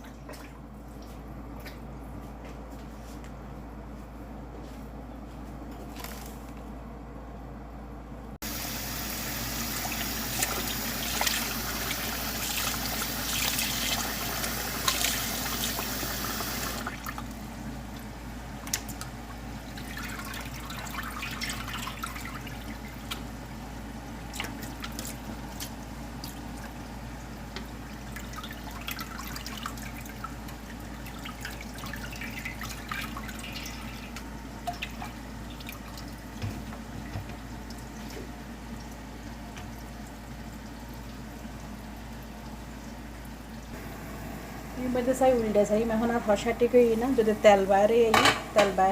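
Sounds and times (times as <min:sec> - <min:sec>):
water running: 0:08.4 - 0:23.6, 0:24.2 - 0:43.8, 0:44.8 - 0:48.9
small clicks and splashes: 0:18.6 - 0:19.2, 0:24.3 - 0:26.8.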